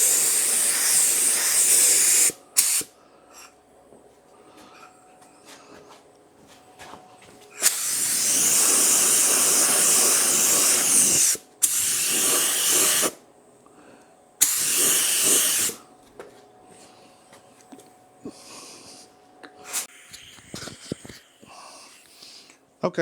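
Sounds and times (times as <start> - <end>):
spray gun hissing: 0.0 - 2.9, 7.6 - 13.2, 14.4 - 15.8.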